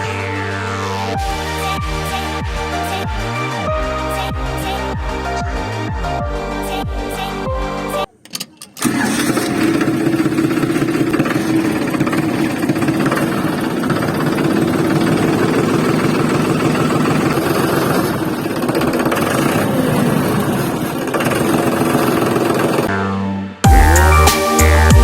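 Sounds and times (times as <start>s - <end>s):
motor running with fast rattle: 8.8s - 22.9s.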